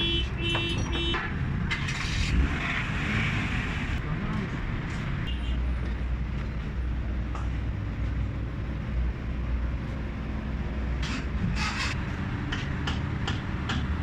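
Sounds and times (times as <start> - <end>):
scraping bursts: 11.0 - 12.0.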